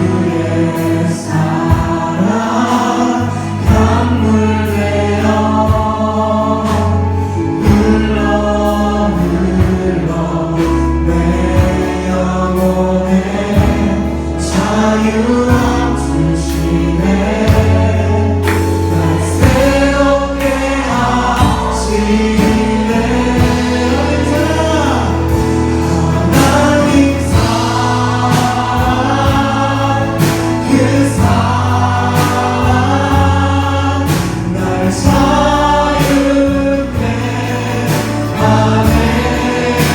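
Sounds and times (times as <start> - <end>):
band with bass and drums: 0.0 - 39.9
group of voices singing: 0.0 - 39.9.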